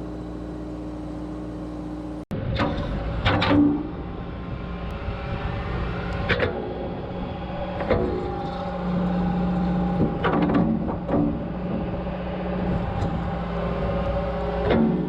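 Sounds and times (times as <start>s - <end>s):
hydraulic clunks: 0.0s - 4.2s, 7.6s - 12.0s, 12.6s - 15.0s
excavator diesel engine running: 0.0s - 15.0s
hydraulic hum under load: 0.0s - 15.0s.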